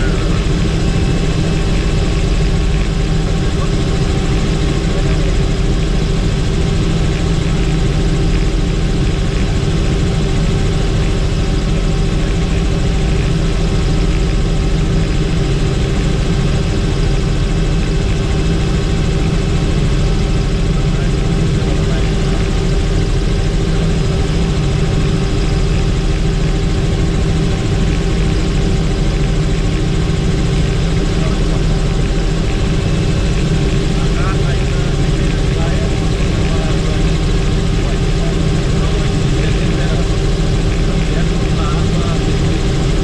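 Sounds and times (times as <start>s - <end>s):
helicopter engine and rotor drone: 0.0s - 43.0s.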